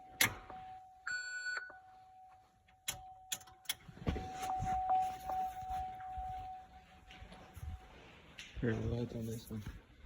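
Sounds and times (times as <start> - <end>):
steady high-pitched tone: 4.2 - 8.0.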